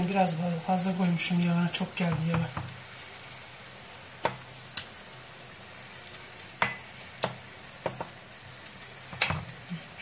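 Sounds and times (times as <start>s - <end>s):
potato mixture frying in oil: 0.0s - 10.0s
wooden spoon knocking on pan: 2.0s - 2.8s, 4.2s - 4.4s, 6.6s - 8.2s, 9.1s - 9.6s.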